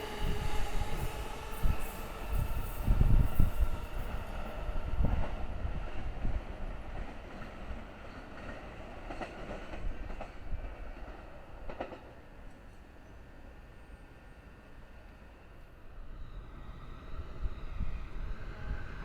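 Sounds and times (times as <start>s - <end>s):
train rumble: 0.0s - 12.1s.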